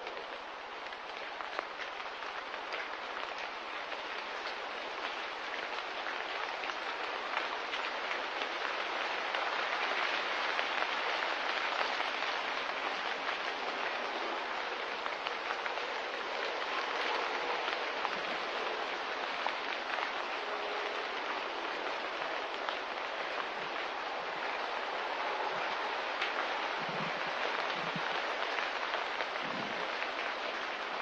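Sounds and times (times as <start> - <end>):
light rain pattering: 0.0 - 31.0.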